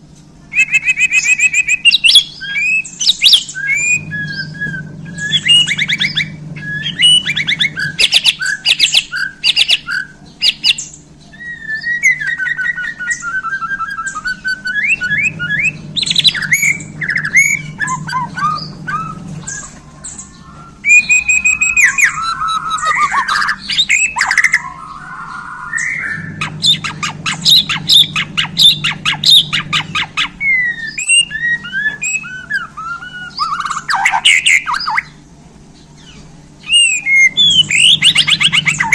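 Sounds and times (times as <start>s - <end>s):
low hum: 0.0s - 38.9s
bird singing with trills: 0.4s - 38.9s.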